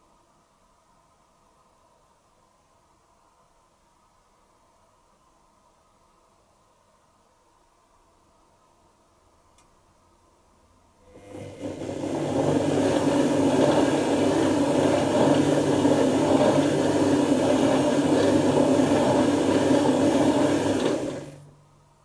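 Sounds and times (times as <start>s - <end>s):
washing machine tumbling wet load: 11.1s - 21.6s
low motor hum: 11.2s - 21.8s.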